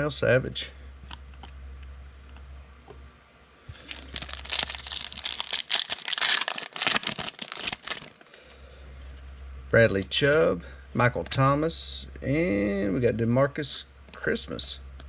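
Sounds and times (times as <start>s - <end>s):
wrapper tearing and crinkling: 3.7s - 8.3s.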